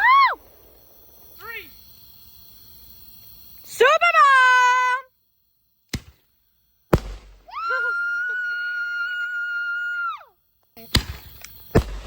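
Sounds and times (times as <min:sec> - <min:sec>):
shrill firework whistle: 0:00.0 - 0:00.5
firework bangs: 0:06.9 - 0:07.8, 0:10.8 - 0:12.0.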